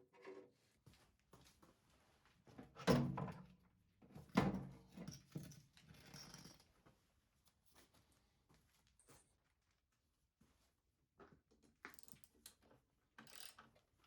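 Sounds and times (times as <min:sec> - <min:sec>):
small clicks and rattles: 0:11.9 - 0:12.6, 0:13.2 - 0:13.8.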